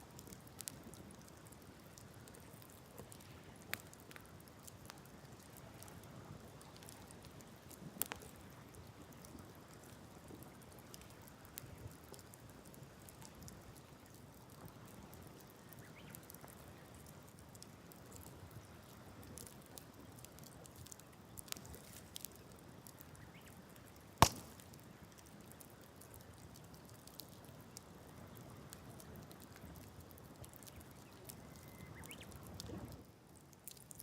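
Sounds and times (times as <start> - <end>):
campfire crackling: 0.0 - 34.0
loud sharp pop: 24.2 - 24.6.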